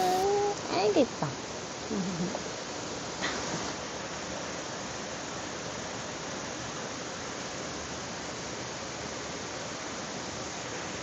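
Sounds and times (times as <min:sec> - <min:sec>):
heavy rain: 0:00.0 - 0:01.0
stream water flowing: 0:00.0 - 0:11.0.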